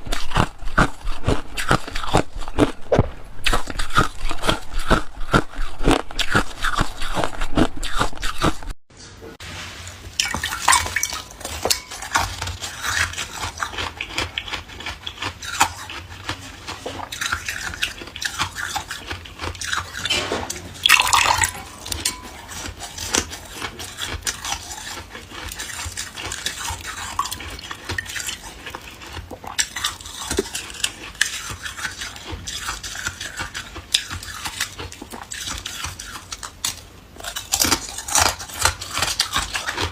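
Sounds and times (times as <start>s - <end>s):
crunching ice between teeth: 0.0s - 8.8s, 10.3s - 20.2s, 20.8s - 39.9s
wet clicks and clinks of ice: 10.2s - 15.7s, 20.8s - 23.3s.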